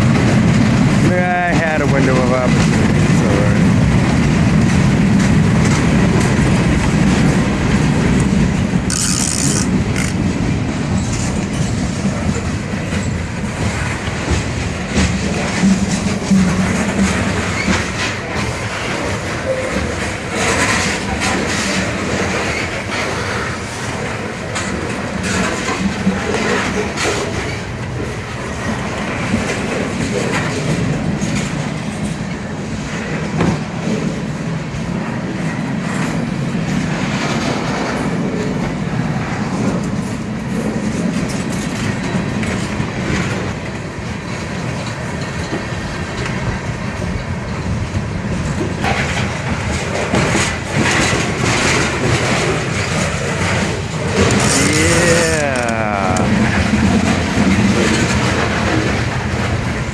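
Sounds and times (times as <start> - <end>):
wheels clattering over rail joints: 0.0 - 34.2, 39.5 - 54.7, 56.4 - 59.9
freight train rumbling past: 0.0 - 59.9.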